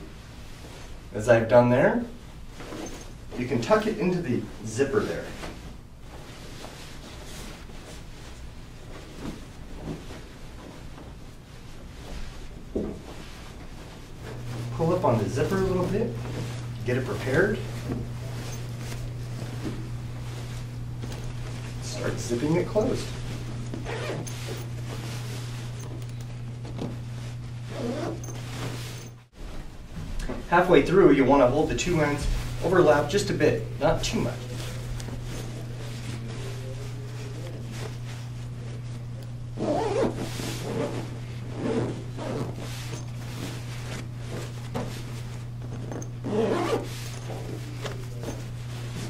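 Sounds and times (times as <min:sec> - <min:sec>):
fabric rustling: 0:00.0 - 0:01.2, 0:02.0 - 0:49.0
steady low hum: 0:00.0 - 0:49.0
zipper being pulled closed: 0:22.0 - 0:27.0, 0:27.7 - 0:29.2, 0:39.6 - 0:48.5.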